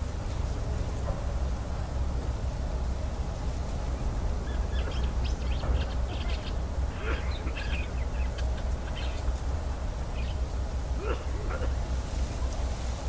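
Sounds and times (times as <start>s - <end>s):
steady low rumble: 0.0s - 13.0s
birds chirping: 4.0s - 12.0s.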